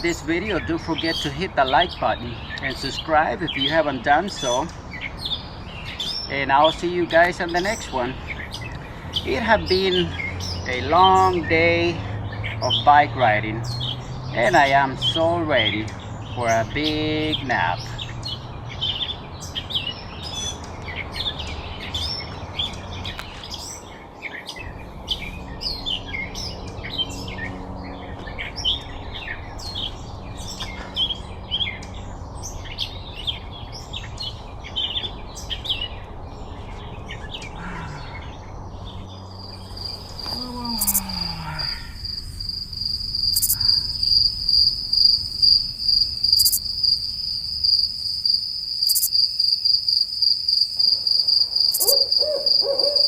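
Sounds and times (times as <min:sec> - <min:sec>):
small birds chirping: 0:00.0 - 0:53.0
high-pitched cricket trill: 0:39.3 - 0:53.0.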